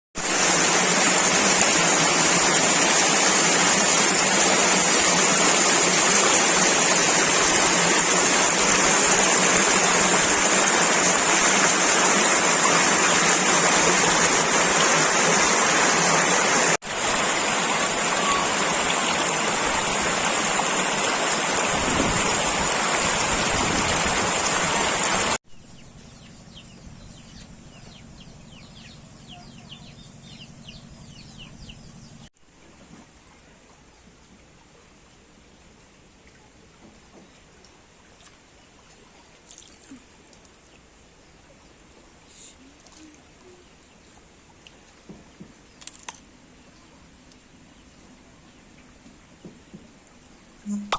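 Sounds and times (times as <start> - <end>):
rushing floodwater: 0.2 - 25.4
birds chirping: 25.5 - 32.3.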